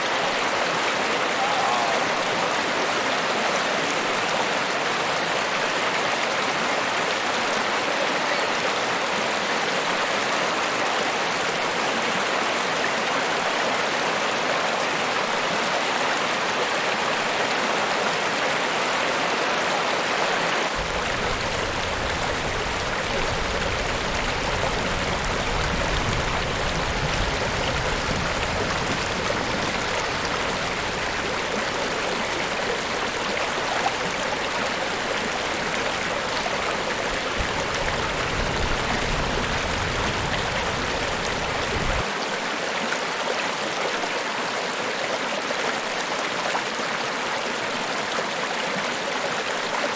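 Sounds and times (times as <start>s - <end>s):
waterfall rushing: 0.0s - 4.2s, 20.6s - 42.2s.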